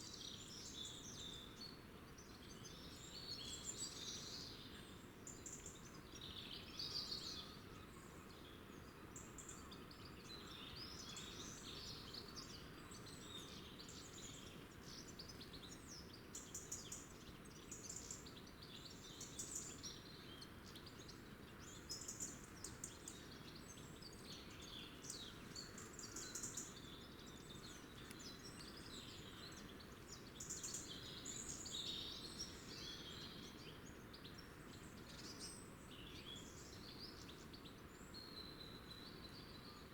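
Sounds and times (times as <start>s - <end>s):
faint background hiss: 0.0s - 39.9s
songbirds chirping: 0.0s - 39.9s.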